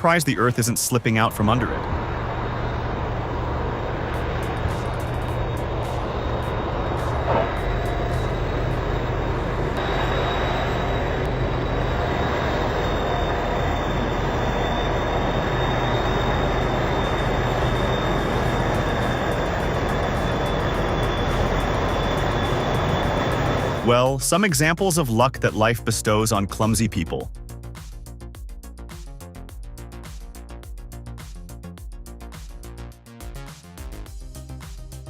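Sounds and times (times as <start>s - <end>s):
faint high whine: 0.0s - 24.2s
heavy machine engine rumbling: 0.0s - 24.4s.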